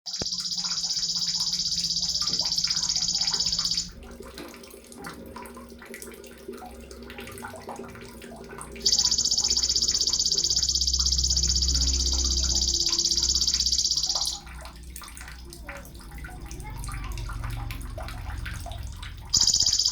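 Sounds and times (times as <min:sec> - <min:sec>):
bird singing rapid high trill: 0:00.0 - 0:03.9, 0:08.8 - 0:14.6, 0:19.3 - 0:19.9
faint bird chirps: 0:00.0 - 0:04.0, 0:08.8 - 0:14.6, 0:19.3 - 0:19.9.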